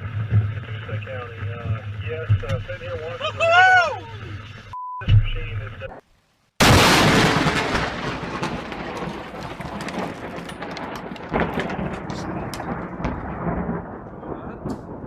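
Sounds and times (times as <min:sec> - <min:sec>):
thunder crack and rumble: 0:00.0 - 0:03.2, 0:06.6 - 0:15.0.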